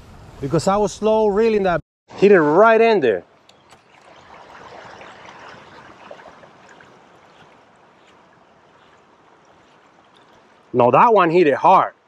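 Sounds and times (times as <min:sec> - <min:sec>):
water trickling: 0:03.3 - 0:11.4.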